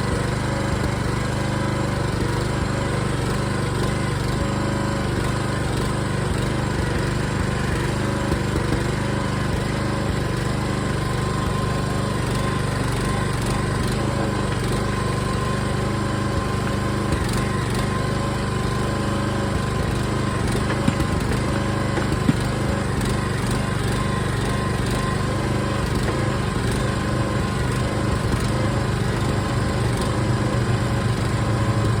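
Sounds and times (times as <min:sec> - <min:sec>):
small gas engine running: 0:00.0 - 0:32.0.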